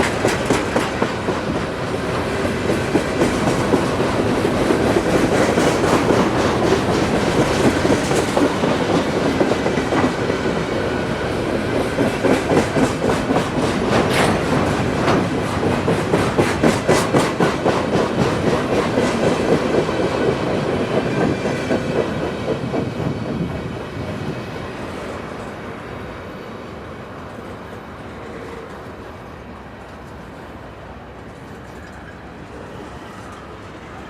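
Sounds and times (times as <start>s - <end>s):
train wheels clicking over rail joints: 0.0s - 23.6s.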